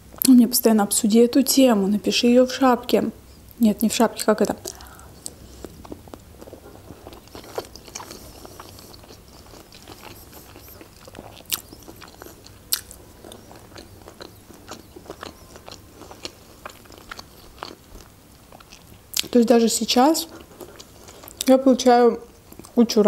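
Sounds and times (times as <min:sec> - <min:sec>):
person chewing and smacking: 0:04.6 - 0:19.4, 0:20.3 - 0:21.6, 0:22.3 - 0:22.8.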